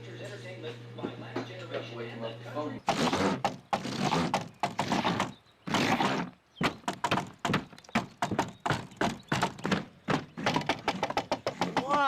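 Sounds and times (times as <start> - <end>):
thuds and knocks: 6.6 - 12.0.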